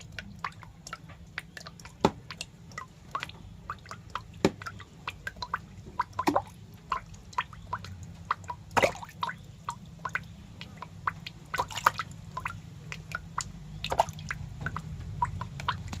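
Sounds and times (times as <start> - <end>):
wet clicks and squelches: 0.0 - 16.0.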